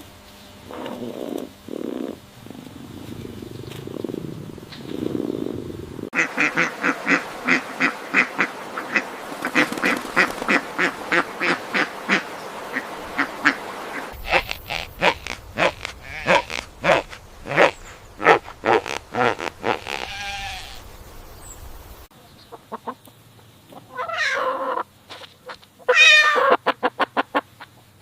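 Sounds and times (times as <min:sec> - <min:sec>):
soft low animal sound: 0:00.6 - 0:06.1
ducks quacking: 0:05.0 - 0:20.9.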